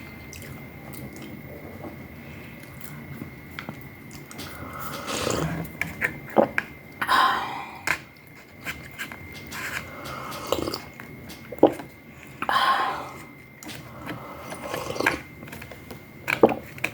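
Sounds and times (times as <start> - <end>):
person chewing: 10.3 - 11.8.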